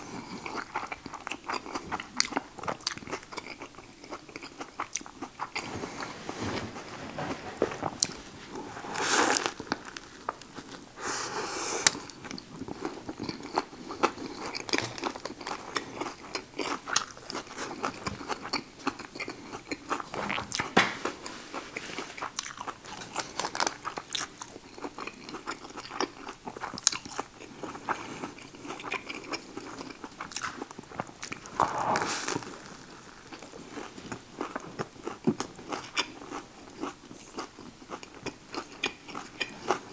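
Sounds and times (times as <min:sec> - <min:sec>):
chewing sandwich with crunches: 0:00.0 - 0:05.7, 0:11.7 - 0:20.7, 0:22.2 - 0:39.9.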